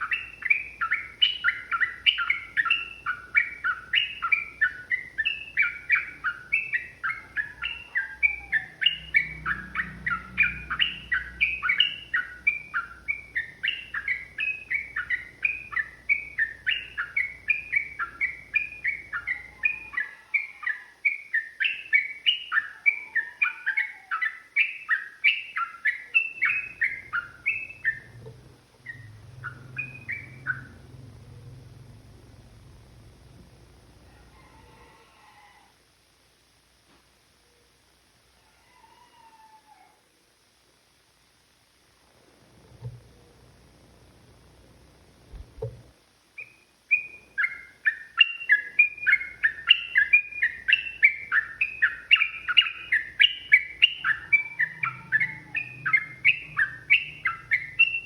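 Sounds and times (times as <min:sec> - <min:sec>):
bulbul chattering song: 0:00.0 - 0:34.1, 0:46.3 - 0:58.0.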